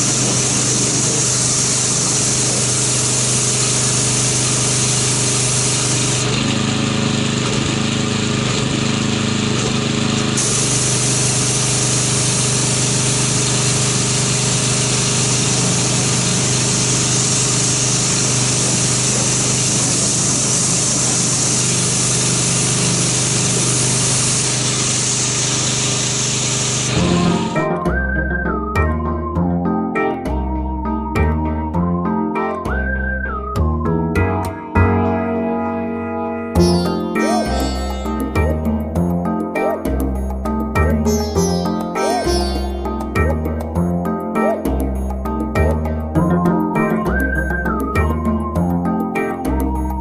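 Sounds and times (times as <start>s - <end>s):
water spray hiss: 0.0s - 6.2s, 10.4s - 27.4s
pressure washer pump hum: 0.0s - 28.1s.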